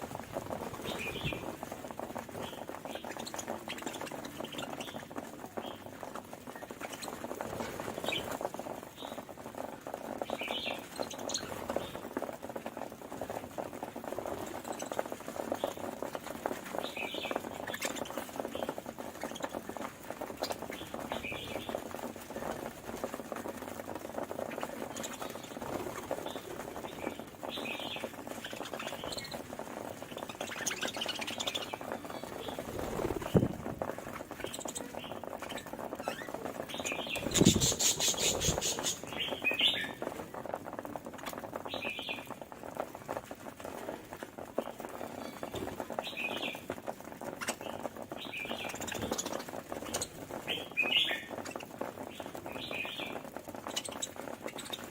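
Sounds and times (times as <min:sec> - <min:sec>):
budgerigars chirping and chattering: 0:00.8 - 0:01.7, 0:02.3 - 0:08.4, 0:10.3 - 0:12.1, 0:16.8 - 0:19.6, 0:20.4 - 0:21.9, 0:24.4 - 0:33.5, 0:34.1 - 0:40.0, 0:47.4 - 0:54.9
harsh rattling burst: 0:37.2 - 0:39.1.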